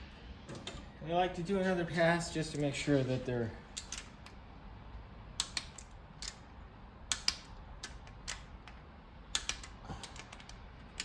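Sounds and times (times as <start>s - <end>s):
wrench clicking on bolts: 3.7s - 4.4s, 5.4s - 6.4s, 7.1s - 11.0s.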